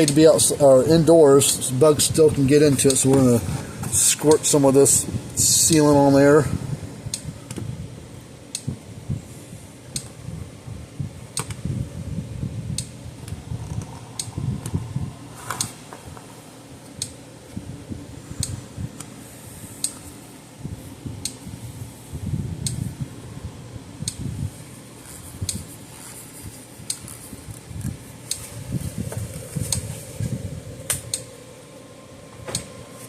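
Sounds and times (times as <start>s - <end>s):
electric fence energizer ticking: 0.0s - 3.4s, 12.7s - 15.9s, 18.3s - 20.3s, 22.2s - 23.1s, 26.8s - 32.8s
rustling handling noise: 24.6s - 30.5s.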